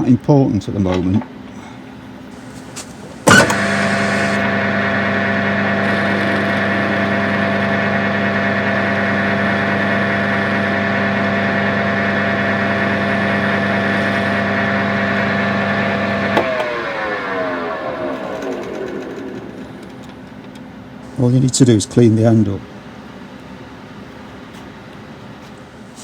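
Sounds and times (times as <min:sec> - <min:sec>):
lathe motor humming and winding down: 0:02.3 - 0:21.6.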